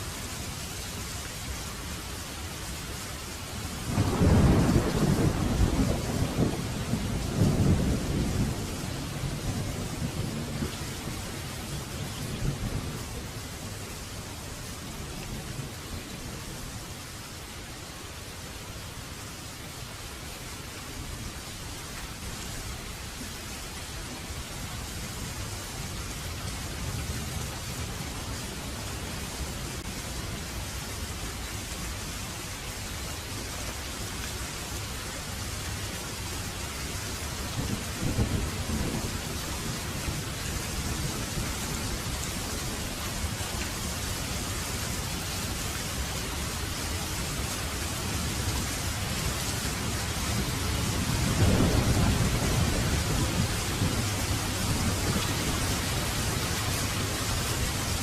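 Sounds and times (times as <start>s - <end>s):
heavy rain: 0.0s - 58.0s
thunder rumbling: 3.9s - 13.3s, 37.4s - 43.4s, 49.7s - 58.0s.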